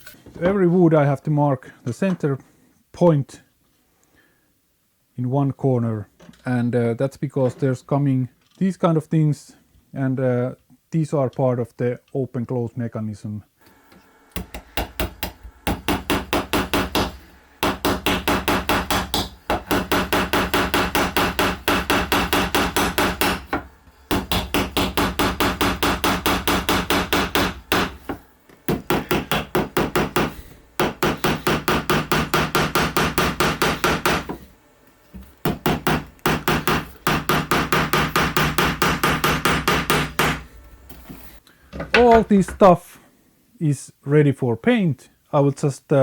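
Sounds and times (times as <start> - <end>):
steady low hum: 13.4 - 45.3
tool knocking rapidly: 14.4 - 28.0, 28.7 - 34.4, 35.4 - 40.4.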